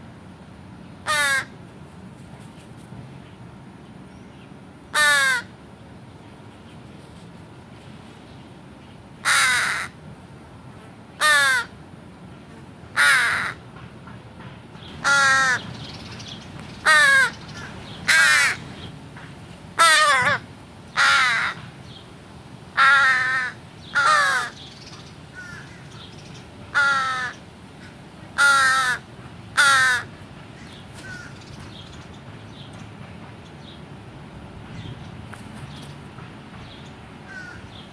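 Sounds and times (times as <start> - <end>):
crow cawing: 1.1 - 1.6, 5.0 - 5.5, 9.2 - 10.0, 11.2 - 11.7, 13.0 - 13.6, 15.0 - 15.6, 16.9 - 18.6, 19.8 - 20.4, 21.0 - 21.6, 22.8 - 24.6, 25.4 - 25.9, 26.7 - 31.4, 37.3 - 37.7.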